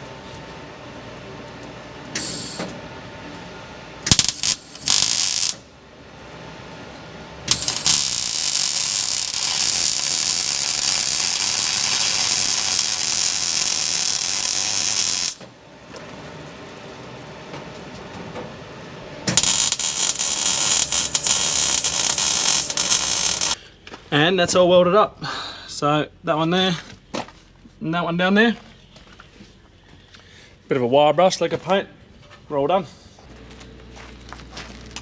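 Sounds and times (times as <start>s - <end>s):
electric welding hiss: 4.1s - 5.6s, 7.5s - 15.4s, 19.3s - 23.6s.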